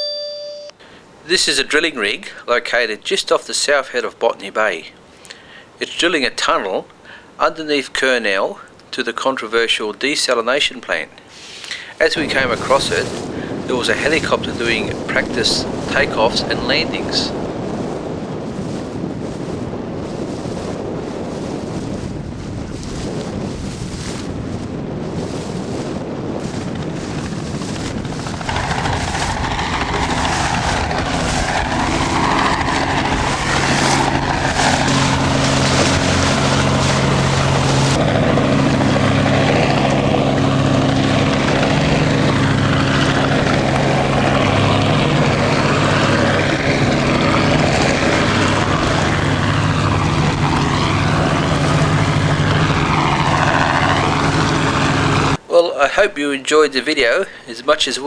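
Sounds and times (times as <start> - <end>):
helicopter engine drone and whine: 11.5 - 21.0, 23.8 - 55.4.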